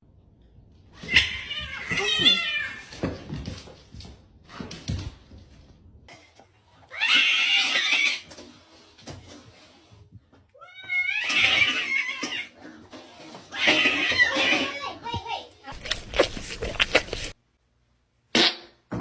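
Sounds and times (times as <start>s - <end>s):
cat meowing loudly: 1.0s - 3.0s.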